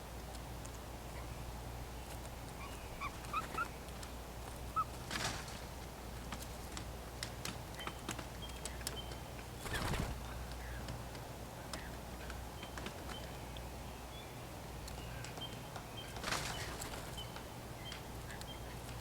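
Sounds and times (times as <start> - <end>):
birds chirping: 1.1 - 5.0, 11.6 - 19.0.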